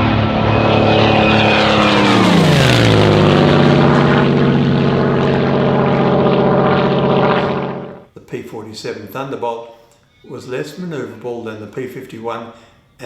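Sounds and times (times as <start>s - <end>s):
propeller plane flying past: 0.0s - 8.1s.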